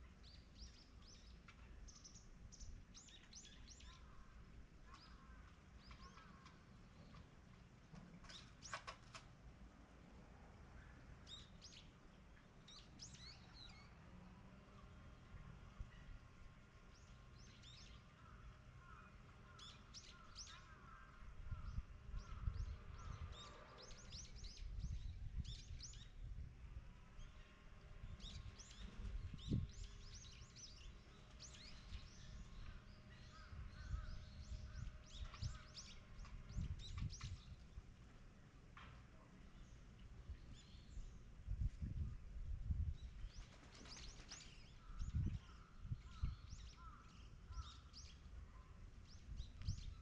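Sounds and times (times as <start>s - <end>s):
small birds chirping: 0.0s - 7.4s, 27.0s - 37.9s, 42.9s - 50.0s.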